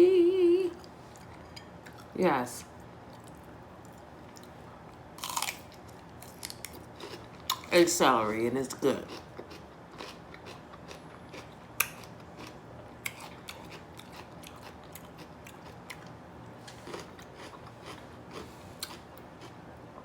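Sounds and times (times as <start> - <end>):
celery crunching: 5.2 - 7.8, 9.0 - 19.6.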